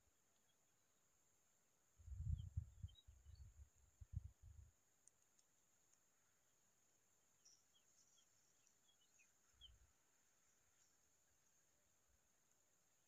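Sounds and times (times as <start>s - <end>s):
faint high bird chirps: 0.4s - 0.8s, 2.1s - 4.2s, 7.3s - 11.7s.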